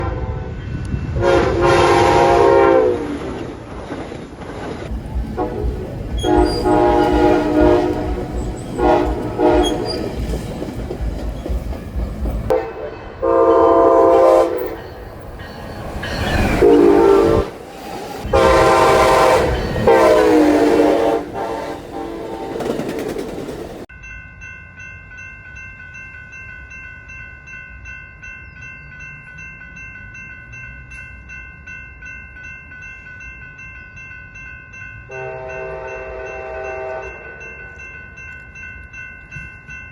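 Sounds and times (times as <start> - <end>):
locomotive horn blasts: 0.0 - 0.6, 1.2 - 3.1, 5.4 - 10.2, 12.5 - 15.0, 16.4 - 17.6, 18.2 - 23.0, 35.1 - 37.4
train rumbling on rails: 0.0 - 23.9.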